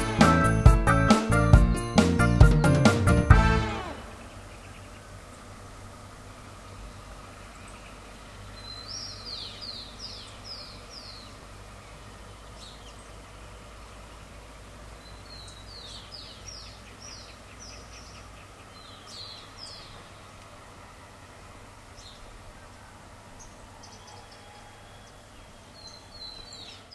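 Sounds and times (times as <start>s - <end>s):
low outdoor rumble: 0.0s - 17.6s
songbird singing: 0.0s - 26.9s.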